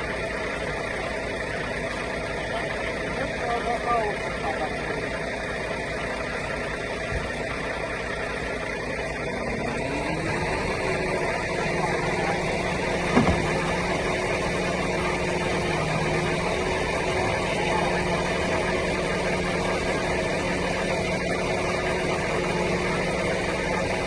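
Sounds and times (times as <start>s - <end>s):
engine revving: 2.4s - 24.0s
sharp knock: 13.1s - 13.5s.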